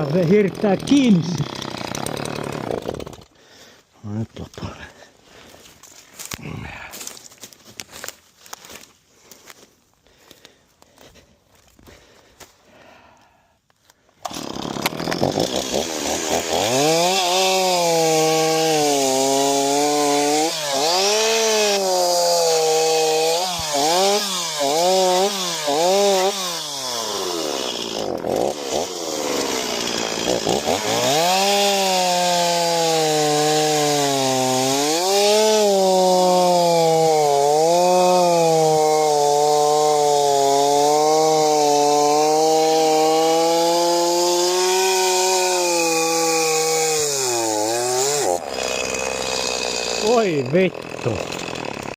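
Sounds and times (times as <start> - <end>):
chainsaw cutting at high revs: 0.0 - 3.8, 14.2 - 51.9.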